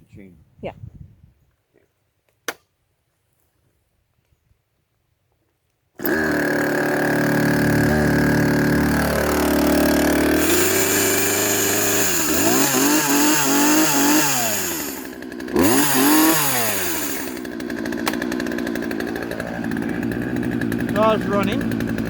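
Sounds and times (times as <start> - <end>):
chainsaw revving and idling: 6.0 - 22.0.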